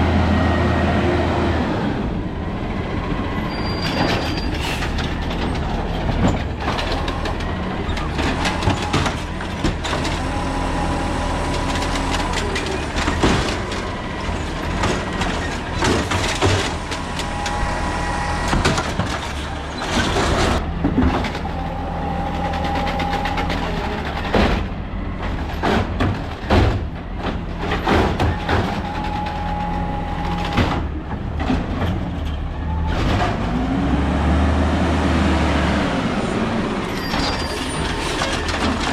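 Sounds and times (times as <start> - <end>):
diesel engine running: 0.0 - 38.9
hydraulic whine: 16.6 - 19.9.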